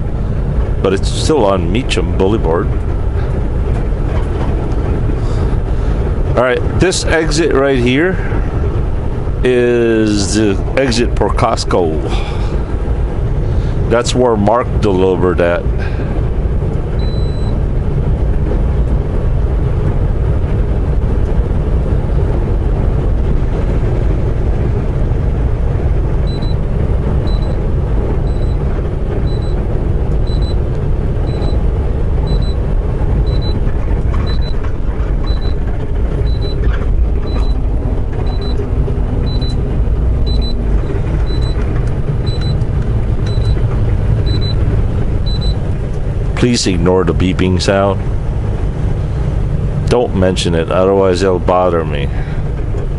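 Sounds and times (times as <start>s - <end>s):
truck engine and road rumble: 0.0s - 52.9s
high electronic beep: 33.3s - 33.6s, 34.2s - 34.6s, 35.2s - 35.6s, 36.2s - 36.7s, 37.3s - 37.6s, 38.3s - 38.6s, 39.2s - 39.6s, 40.3s - 40.6s, 41.3s - 41.6s, 43.3s - 43.6s, 44.3s - 44.6s.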